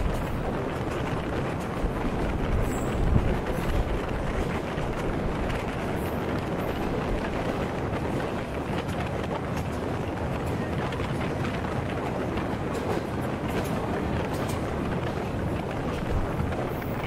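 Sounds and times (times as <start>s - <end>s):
train wheels rumbling on rails: 0.0s - 17.0s
wind noise: 0.0s - 17.0s.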